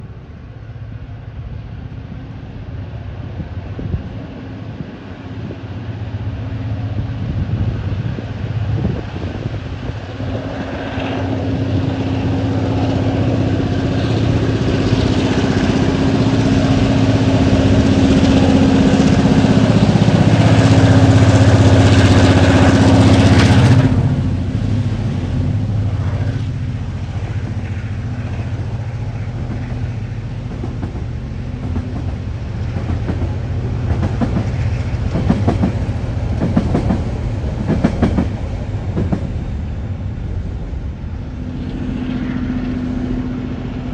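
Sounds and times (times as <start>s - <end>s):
diesel locomotive engine: 0.0s - 43.9s
train wagons clattering on rails: 27.1s - 40.0s.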